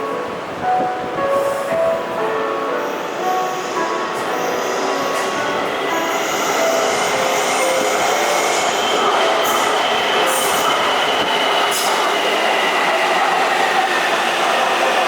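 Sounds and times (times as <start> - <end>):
electric metro train running: 0.0 - 15.0.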